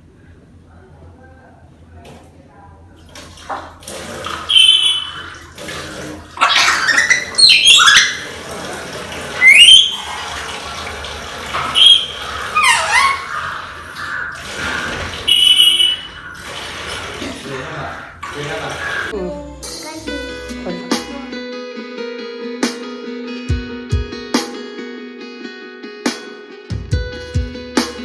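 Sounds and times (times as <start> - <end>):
parrot whistling and squawking: 4.4 - 5.5, 6.4 - 8.4, 9.3 - 17.3, 18.4 - 19.1.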